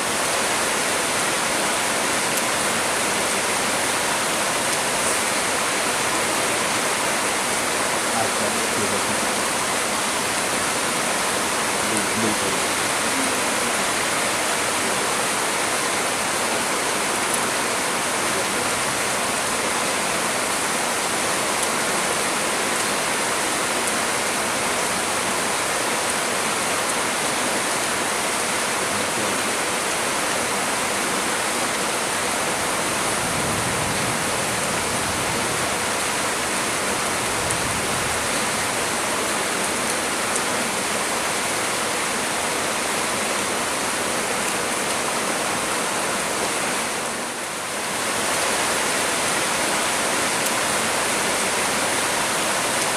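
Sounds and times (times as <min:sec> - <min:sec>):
heavy rain pouring: 0:00.0 - 0:52.9
low rush of wind: 0:32.0 - 0:39.2.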